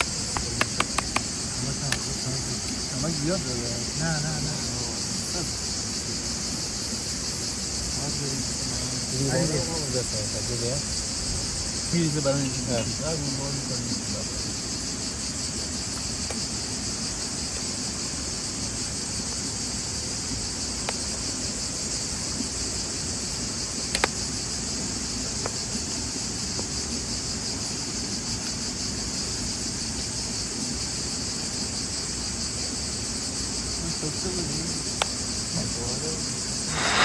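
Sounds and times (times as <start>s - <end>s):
sharp clicks: 0.0s - 2.1s
insects chirring: 0.0s - 37.0s.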